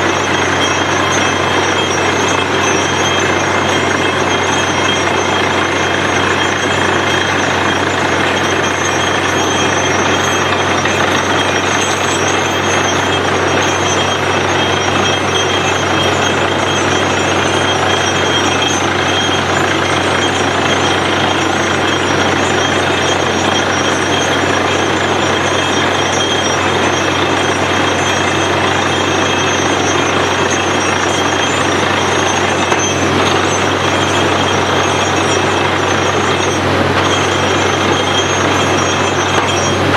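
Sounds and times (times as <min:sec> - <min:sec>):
drilling machine running: 0:00.0 - 0:39.9.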